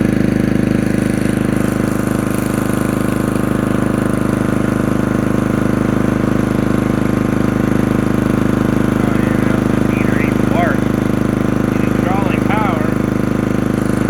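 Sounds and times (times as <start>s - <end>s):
small generator engine running: 0.0s - 14.0s.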